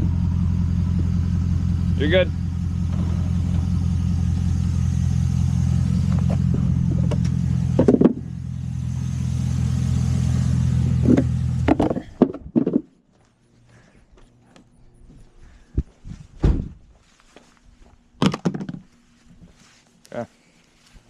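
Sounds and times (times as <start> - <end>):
car engine idling: 0.0 - 12.2
clunks: 2.7 - 4.8, 5.4 - 8.5, 10.9 - 12.9.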